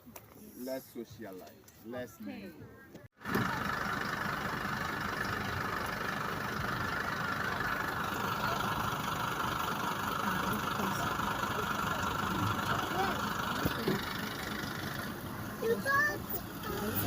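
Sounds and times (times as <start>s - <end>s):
bus engine running: 3.2s - 17.0s.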